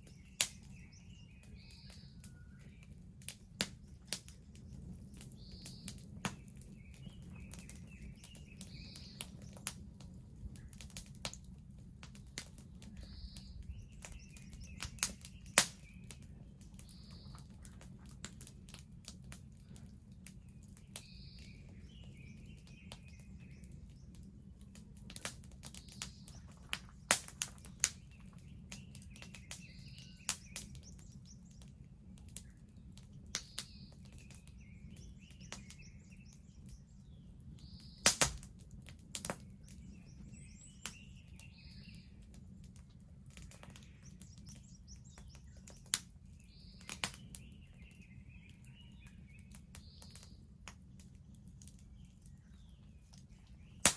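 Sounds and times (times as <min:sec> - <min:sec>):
bird singing: 0:00.0 - 0:09.7, 0:12.5 - 0:17.8, 0:20.4 - 0:24.2, 0:25.6 - 0:31.7, 0:32.3 - 0:38.1, 0:39.4 - 0:42.3, 0:43.5 - 0:50.5, 0:51.8 - 0:53.9
wood fire crackling and popping: 0:00.0 - 0:53.9.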